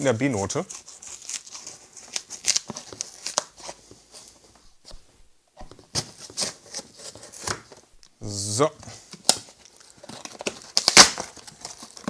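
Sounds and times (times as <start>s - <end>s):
cardboard box tearing open: 10.1s - 12.0s.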